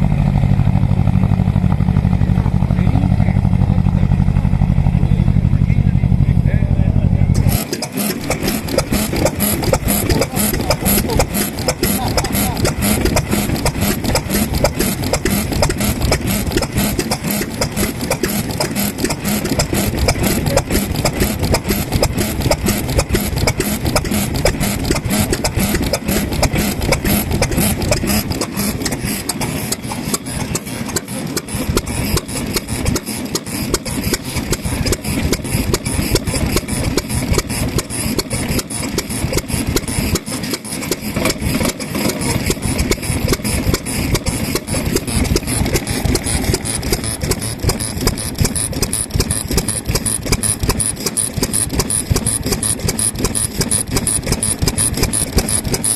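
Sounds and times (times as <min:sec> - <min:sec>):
stationary engine idling: 0:00.0 - 0:55.9.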